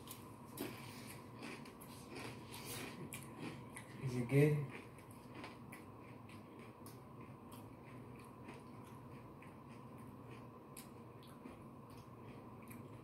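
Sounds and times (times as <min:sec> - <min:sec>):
person crunching food: 0:00.0 - 0:13.0.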